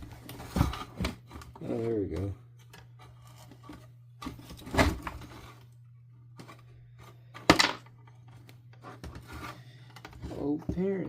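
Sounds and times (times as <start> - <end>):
plastic parts knocking and clacking: 7.3 - 9.3.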